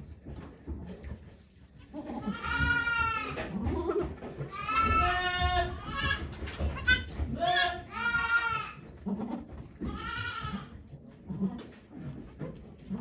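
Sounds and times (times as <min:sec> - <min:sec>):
goat bleating: 0:01.9 - 0:11.7.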